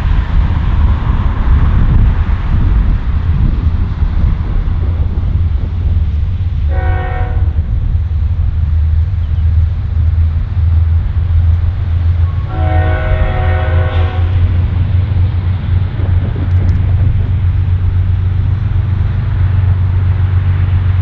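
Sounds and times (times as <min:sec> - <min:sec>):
freight train rumble: 0:00.0 - 0:21.0
locomotive horn blast: 0:06.7 - 0:07.8, 0:11.8 - 0:15.0.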